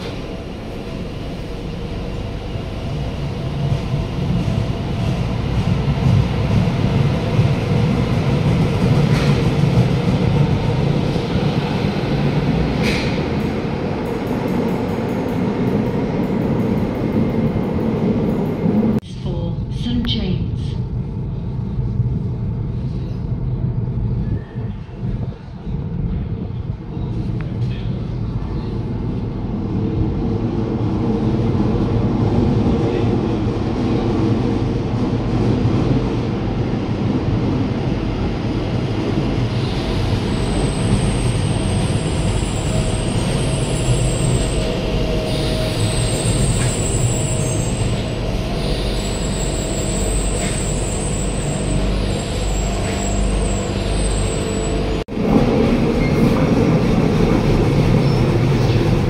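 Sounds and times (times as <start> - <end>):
train rumbling in tunnel: 0.0 - 59.0
high-pitched train squeal: 39.5 - 55.0.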